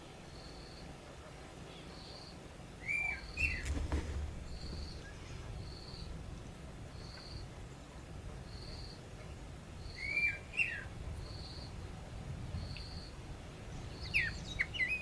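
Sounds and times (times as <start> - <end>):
quick arched bird chirps: 3.0 - 6.1
low thump and rumble: 3.4 - 7.0.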